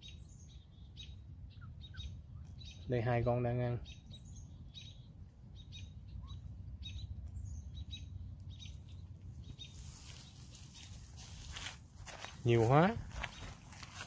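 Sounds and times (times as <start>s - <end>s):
small birds chirping: 0.0s - 14.0s
rustling noise: 9.4s - 14.0s.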